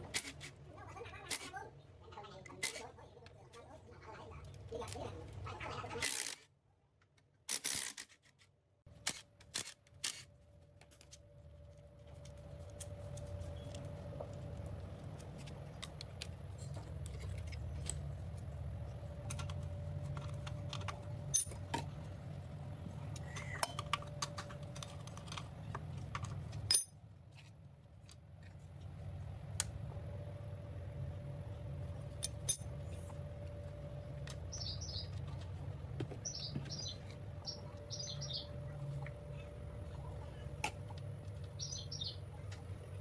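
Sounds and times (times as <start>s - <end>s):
steady low hum: 8.9s - 43.0s
metal tools clinking: 19.2s - 21.8s, 26.4s - 27.0s, 32.1s - 32.8s.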